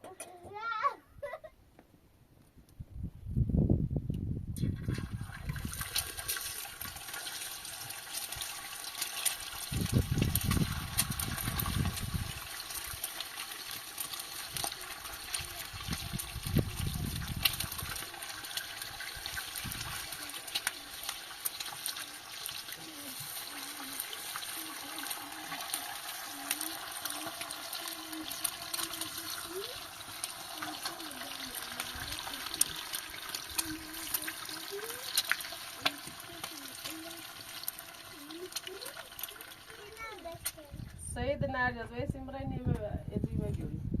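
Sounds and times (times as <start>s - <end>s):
water running: 4.7s - 40.3s.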